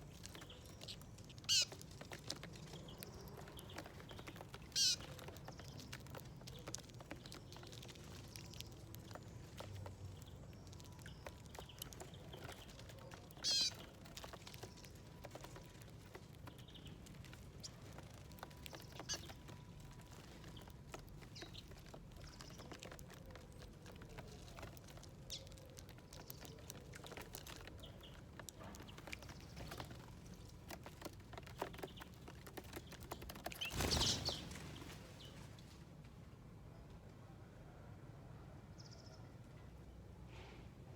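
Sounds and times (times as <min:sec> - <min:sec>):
birds pecking at seeds: 0:00.0 - 0:35.8
high bird chirps: 0:13.4 - 0:13.9.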